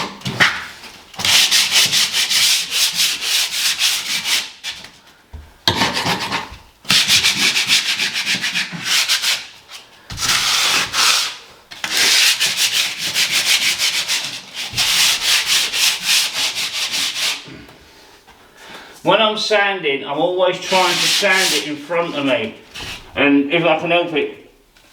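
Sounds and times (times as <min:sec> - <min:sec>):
sandpaper sanding strokes: 0:01.2 - 0:04.6, 0:06.9 - 0:09.5, 0:10.2 - 0:17.4, 0:20.6 - 0:22.3.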